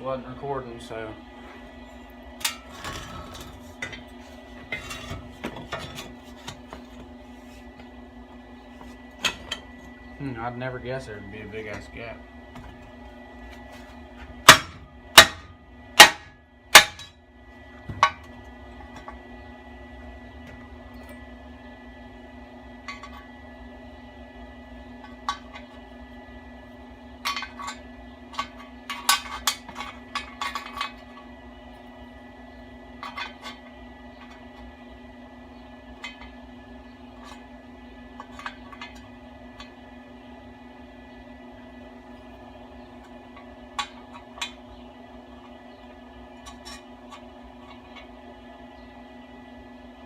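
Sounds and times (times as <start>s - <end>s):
electrical hum: 0.0s - 50.0s
hammer striking steel pipe: 14.4s - 17.1s.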